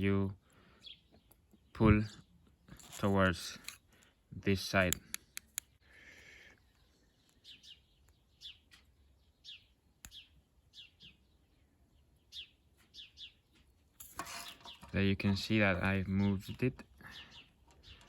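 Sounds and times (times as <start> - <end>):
sharp clicks: 4.8 - 5.8
faint bird chirping: 5.2 - 13.7, 15.8 - 18.0.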